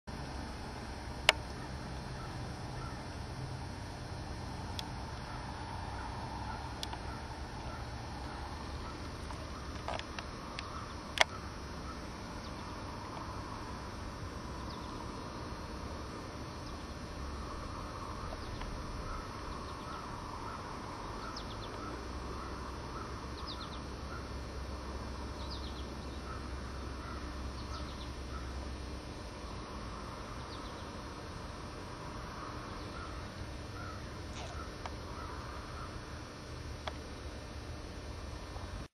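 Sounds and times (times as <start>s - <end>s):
steady low rumble: 0.1s - 38.9s
faint birds calling: 0.3s - 38.9s
sharp click: 9.3s - 11.4s.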